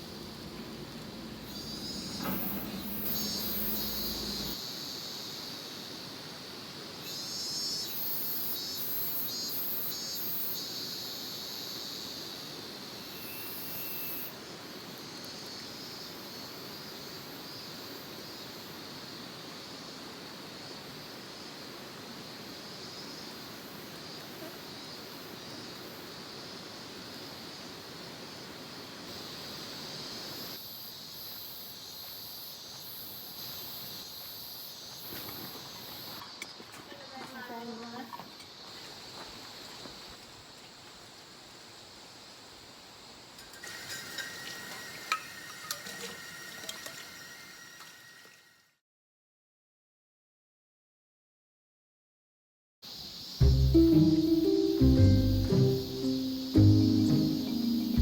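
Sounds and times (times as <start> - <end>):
steady hiss: 0.0 - 36.3, 52.9 - 58.0
insects trilling: 0.0 - 48.5, 52.9 - 58.0
high-pitched chirping: 53.4 - 58.0.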